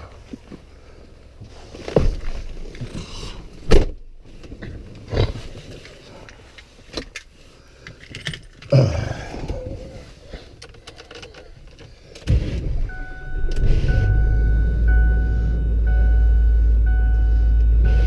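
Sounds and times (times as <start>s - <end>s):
clicks and rustling: 9.5s - 12.7s
vehicle engine starting and running: 12.1s - 18.0s
warning chime beeping: 12.8s - 18.0s.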